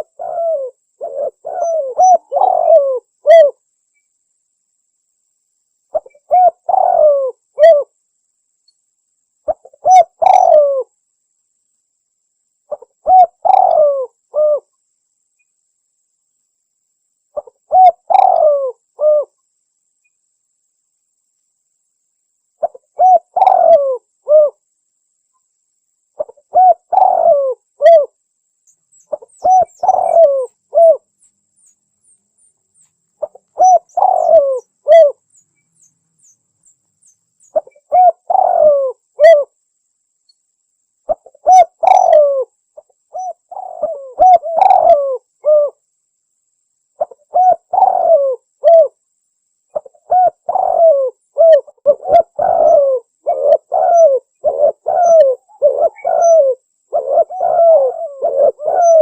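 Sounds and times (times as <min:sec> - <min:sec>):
dove cooing: 0:00.0 - 0:03.6, 0:05.9 - 0:07.9, 0:09.4 - 0:10.9, 0:12.7 - 0:14.7, 0:17.4 - 0:19.4, 0:22.6 - 0:24.6, 0:26.2 - 0:28.2, 0:29.1 - 0:31.1, 0:33.2 - 0:35.3, 0:37.5 - 0:39.5, 0:41.1 - 0:45.8, 0:47.0 - 0:49.0, 0:49.7 - 0:59.0
faint high chirps: 0:26.0 - 0:39.6.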